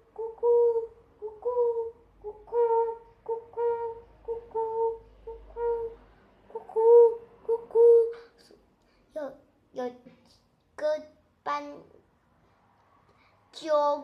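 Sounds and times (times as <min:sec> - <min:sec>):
child imitating pigeon coo: 0:00.0 - 0:08.6.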